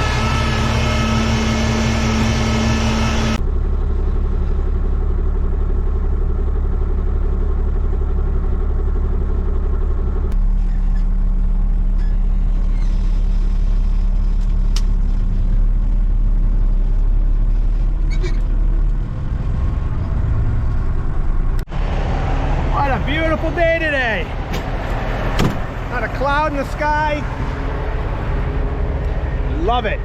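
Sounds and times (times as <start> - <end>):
heavy truck engine droning: 0.0 - 30.0.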